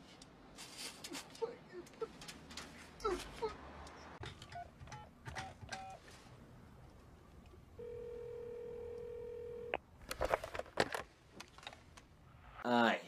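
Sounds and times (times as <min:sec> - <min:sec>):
telephone key tone: 0:07.8 - 0:09.8
telephone ringback tone: 0:07.8 - 0:09.8.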